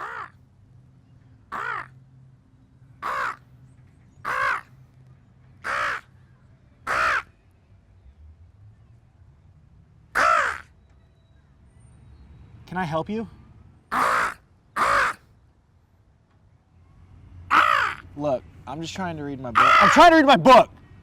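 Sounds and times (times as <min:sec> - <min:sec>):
crow cawing: 0:00.0 - 0:00.4, 0:01.5 - 0:02.0, 0:03.0 - 0:03.4, 0:04.2 - 0:04.7, 0:05.6 - 0:06.1, 0:06.9 - 0:07.4, 0:10.2 - 0:10.7, 0:13.9 - 0:15.3, 0:17.5 - 0:18.1, 0:19.6 - 0:20.2.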